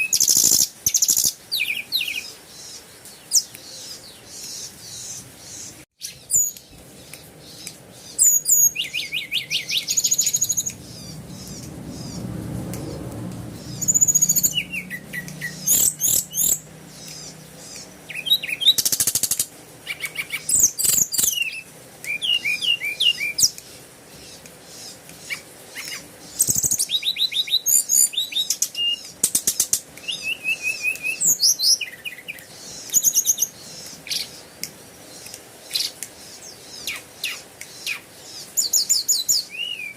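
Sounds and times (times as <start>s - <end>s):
small birds chirping: 0.0s - 39.9s
low hum: 9.6s - 18.1s.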